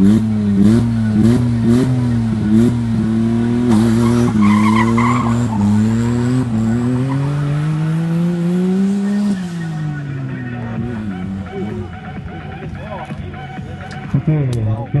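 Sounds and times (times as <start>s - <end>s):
drag car engine accelerating hard: 0.0s - 12.0s.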